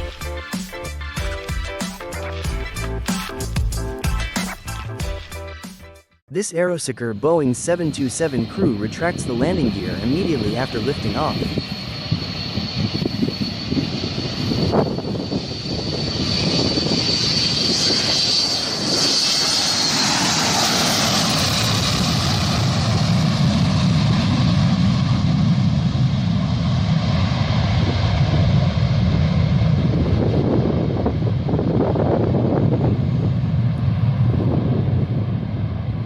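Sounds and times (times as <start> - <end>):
jet engines whining and rumbling: 6.4 - 36.0.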